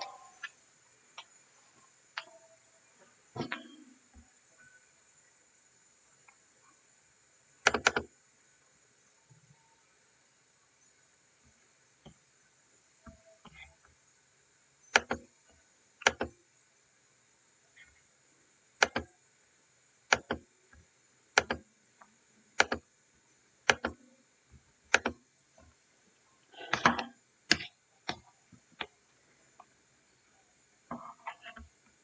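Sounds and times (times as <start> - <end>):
sharp clicks: 18.8 - 19.1, 20.1 - 20.4, 23.7 - 24.0.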